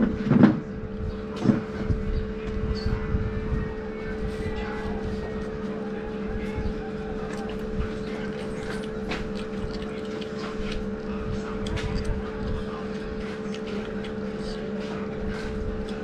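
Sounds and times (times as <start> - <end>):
steady machine hum: 0.0 - 16.0
person chewing and lip-smacking: 6.4 - 16.0.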